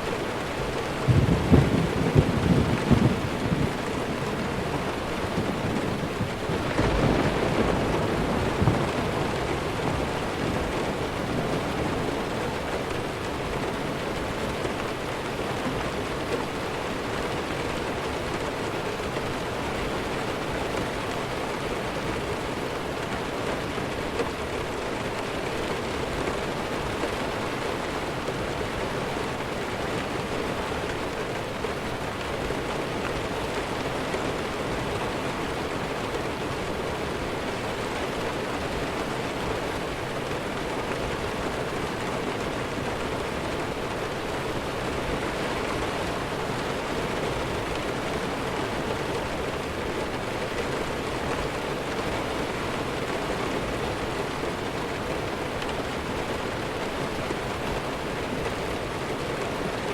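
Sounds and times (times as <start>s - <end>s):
heavy rain: 0.0s - 59.9s
distant thunder rumble: 0.5s - 13.0s.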